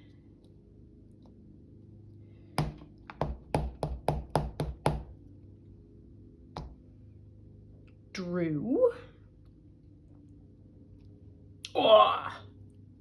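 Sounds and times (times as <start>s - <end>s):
stamp tapping on tabletop: 2.6s - 5.1s, 6.6s - 6.8s.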